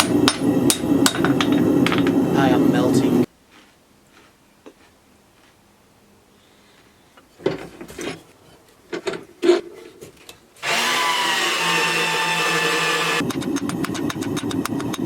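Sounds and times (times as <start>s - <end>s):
scraping and knocking handling: 1.1s - 2.2s, 7.2s - 10.4s
power tool motor whining: 10.6s - 15.0s.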